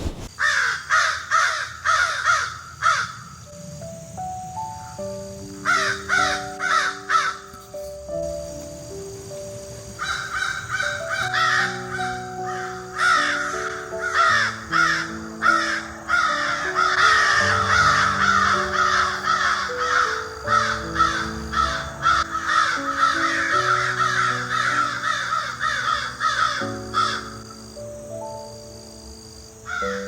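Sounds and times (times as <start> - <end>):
soft background music: 3.4 - 30.0
birds calling roughly: 10.0 - 27.6.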